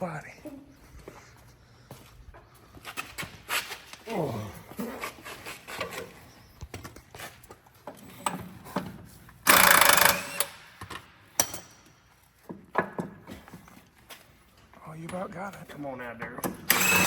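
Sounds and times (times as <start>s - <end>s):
tools clicking and knocking on metal: 7.8s - 13.8s, 14.6s - 17.0s
impact wrench burst: 9.5s - 11.7s, 16.7s - 17.0s.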